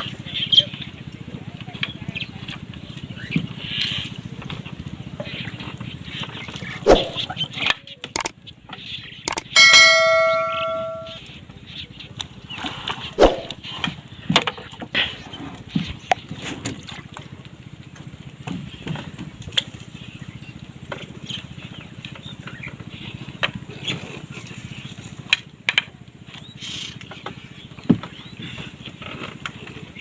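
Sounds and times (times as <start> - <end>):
sharp knocks and clatter: 9.3 - 11.2
small engine running: 17.2 - 30.0.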